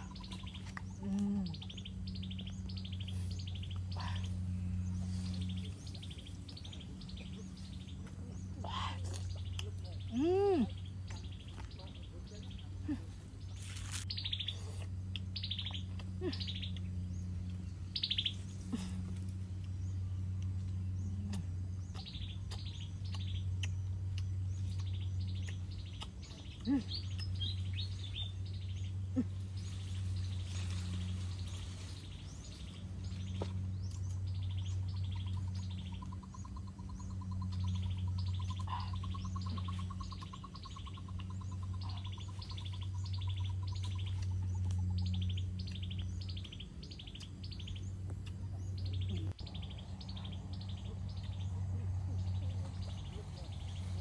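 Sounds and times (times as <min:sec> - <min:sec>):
birds chirping: 0:00.0 - 0:54.0
low hum: 0:00.0 - 0:54.0
sharp snaps: 0:21.2 - 0:27.4.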